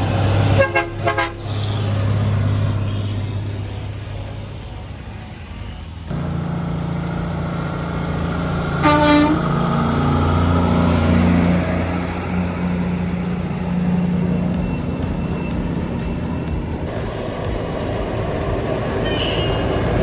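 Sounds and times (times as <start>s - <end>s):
truck diesel engine braking: 0.0s - 20.0s
short horn toot: 8.8s - 9.6s.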